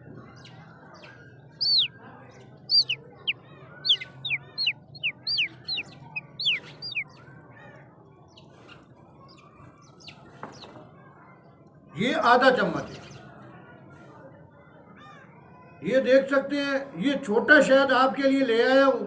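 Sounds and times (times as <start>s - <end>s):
bird whistling: 1.6s - 2.0s, 2.6s - 7.1s.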